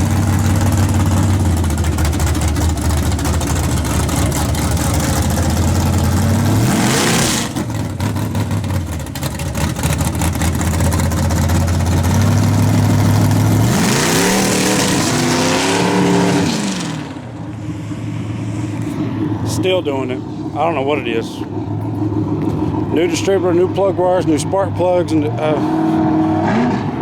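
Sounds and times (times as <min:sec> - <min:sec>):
engine popping under load: 0:00.0 - 0:17.4
pickup truck engine running: 0:00.0 - 0:26.2.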